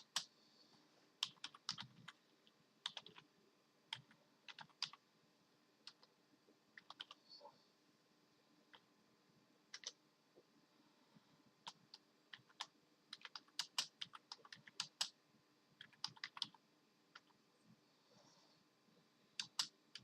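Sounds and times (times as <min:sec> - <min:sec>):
keyboard keys clicking: 0:01.2 - 0:02.2, 0:02.8 - 0:03.2, 0:06.8 - 0:07.2, 0:09.7 - 0:10.0, 0:11.6 - 0:15.1, 0:15.8 - 0:17.3, 0:19.4 - 0:20.0.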